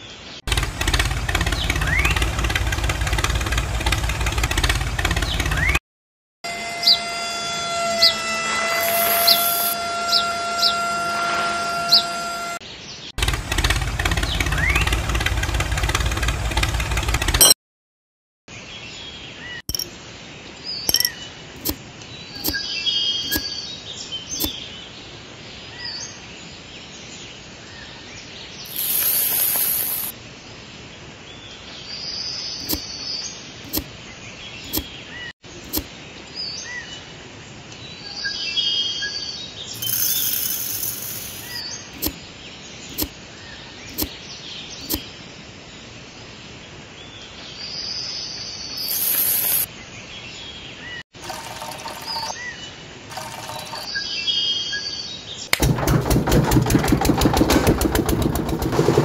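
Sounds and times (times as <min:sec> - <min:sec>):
birds chirping: 0:00.0 - 0:05.8, 0:08.8 - 0:17.5, 0:39.6 - 0:45.2, 0:47.6 - 0:55.5
outdoor background noise: 0:00.0 - 0:05.8, 0:06.5 - 0:17.6, 0:18.5 - 0:59.0
loud noise: 0:06.5 - 0:12.6
sharp clicks: 0:19.7 - 0:19.9, 0:20.9 - 0:21.8, 0:42.9 - 0:43.1, 0:43.9 - 0:44.1, 0:44.8 - 0:45.0
short hissing bursts: 0:28.7 - 0:30.1.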